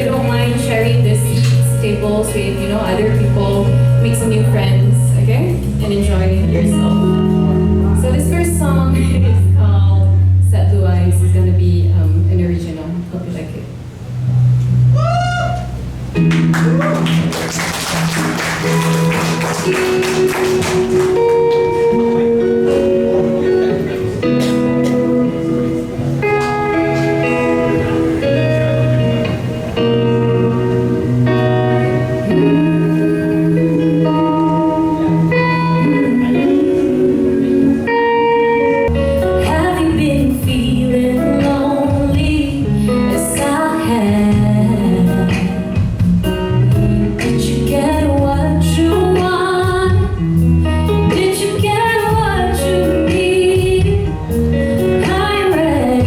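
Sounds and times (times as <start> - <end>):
woman singing: 0.0 - 7.3, 32.1 - 38.3, 39.3 - 45.9, 47.2 - 50.2, 50.9 - 56.0
guitar strumming chords: 0.0 - 12.7, 13.7 - 56.0.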